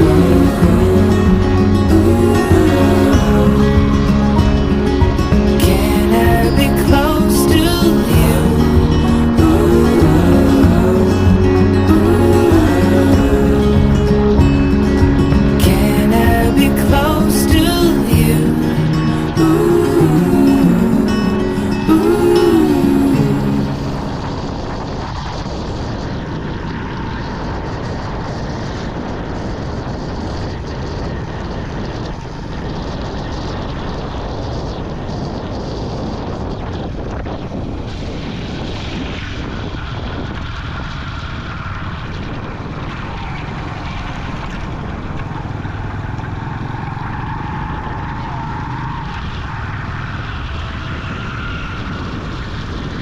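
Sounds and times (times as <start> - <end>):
road noise: 0.0 - 53.0
wind: 0.0 - 53.0
motorcycle engine running: 40.5 - 50.7.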